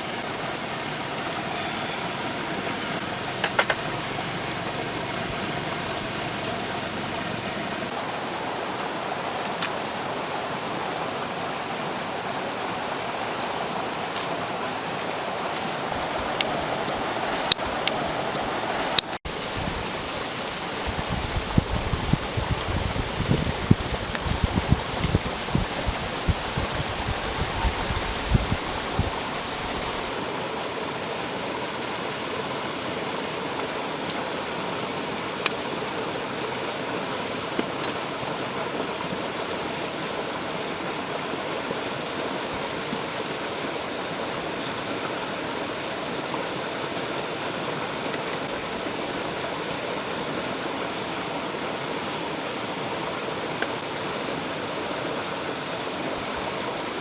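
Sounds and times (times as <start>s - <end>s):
stream water running: 0.0s - 57.0s
wind buffeting microphone: 19.3s - 30.2s.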